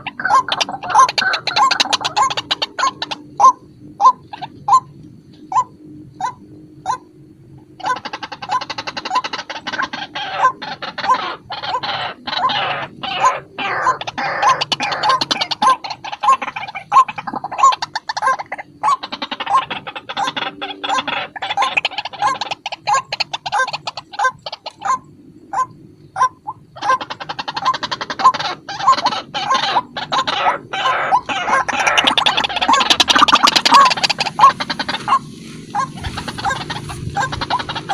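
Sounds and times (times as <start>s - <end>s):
waterhen calling: 0.0s - 7.1s, 7.7s - 37.9s
harsh croaking bird notes: 0.0s - 37.9s
fast rattling bird notes: 7.7s - 37.9s.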